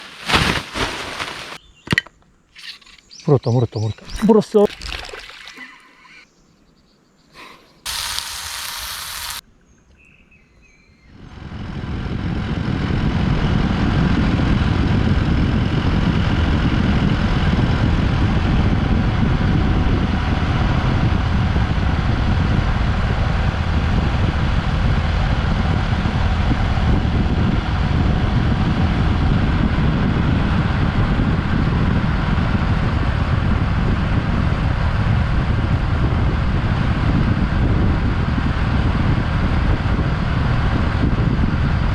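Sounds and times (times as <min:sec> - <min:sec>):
wind rushing: 0:11.1 - 0:41.9
motorcycle engine: 0:11.2 - 0:41.9.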